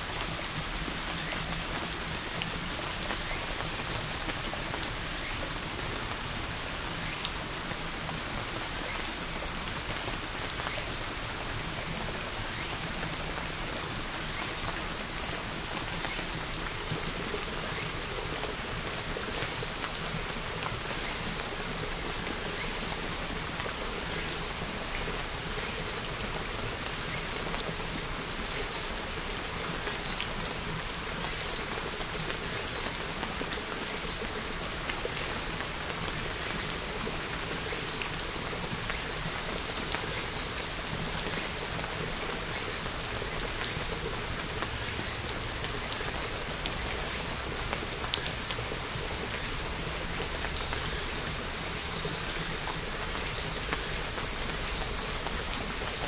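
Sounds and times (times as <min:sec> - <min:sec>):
steady rain hissing: 0:00.0 - 0:56.0
light raindrop ticks: 0:42.5 - 0:56.0.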